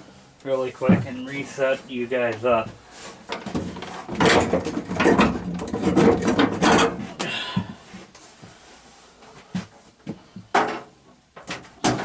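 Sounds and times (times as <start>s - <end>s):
knocks and clunks: 0.8s - 1.3s, 2.6s - 7.8s, 9.6s - 12.0s.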